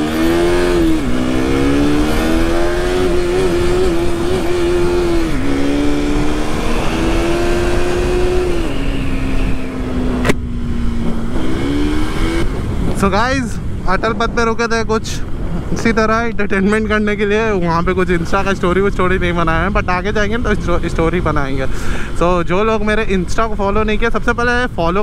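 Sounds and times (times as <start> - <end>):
motorcycle engine shifting gears: 0.0 - 13.0
wind noise: 0.0 - 25.0
sharp click: 10.2 - 10.4.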